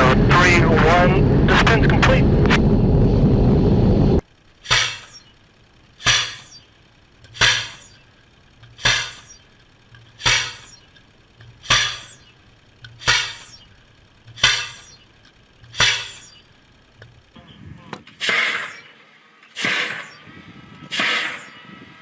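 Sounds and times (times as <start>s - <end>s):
low steady hum: 0.0s - 22.0s
weapon firing sharp blasts: 18.2s - 18.9s, 19.6s - 20.2s, 20.9s - 21.5s.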